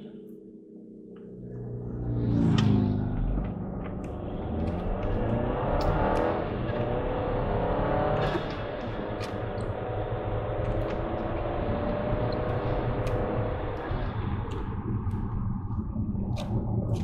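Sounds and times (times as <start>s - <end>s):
road rumble: 1.2s - 17.0s
car engine accelerating: 1.5s - 17.0s.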